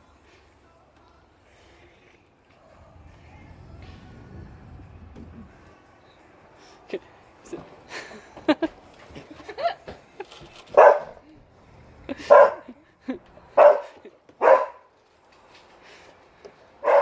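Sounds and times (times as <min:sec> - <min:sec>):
dog barking: 0:10.7 - 0:11.2, 0:12.2 - 0:12.8, 0:13.6 - 0:14.9, 0:16.8 - 0:17.0.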